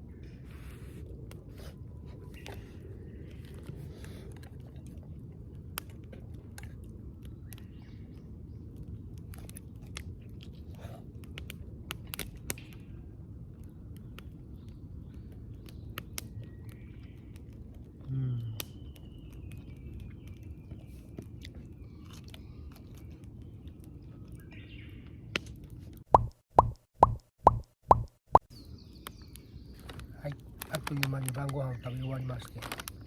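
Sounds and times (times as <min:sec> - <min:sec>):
low background rumble: 0:00.0 - 0:33.0
person chewing and crunching: 0:20.7 - 0:23.2.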